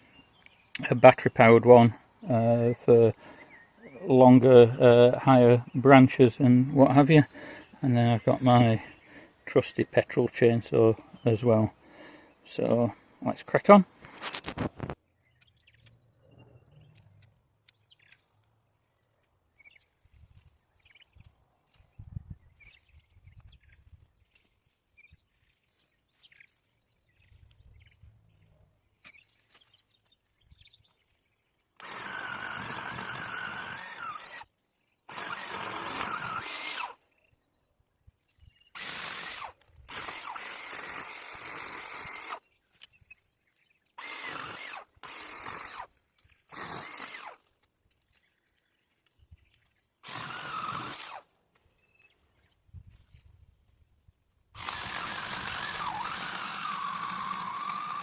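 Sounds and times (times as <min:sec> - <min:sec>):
pole chainsaw cutting branches: 0:31.8 - 0:34.5, 0:35.1 - 0:37.0, 0:38.7 - 0:42.4, 0:44.0 - 0:47.7, 0:50.0 - 0:51.3, 0:54.6 - 0:58.0.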